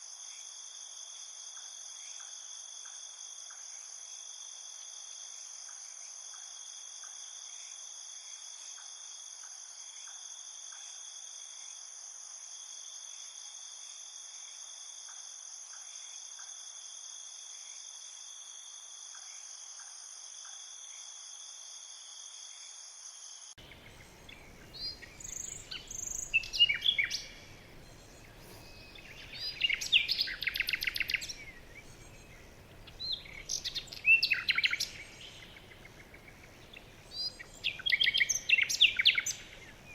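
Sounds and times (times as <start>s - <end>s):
insects chirping: 0.0s - 39.9s
songbirds trilling: 23.6s - 39.9s.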